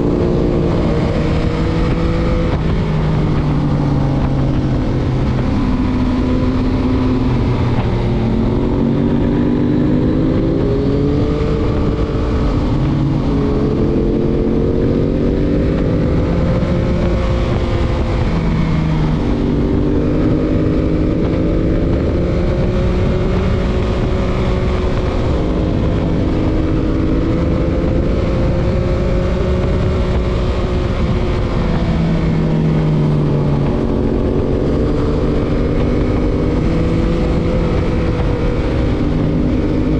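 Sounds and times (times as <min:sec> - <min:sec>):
motorcycle engine revving: 0:00.0 - 0:39.9
wind and road noise: 0:00.0 - 0:39.9.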